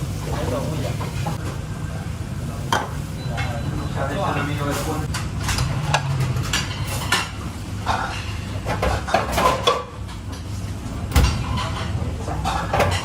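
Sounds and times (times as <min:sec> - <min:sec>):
metal utensils and cookware clattering: 0:02.7 - 0:13.0.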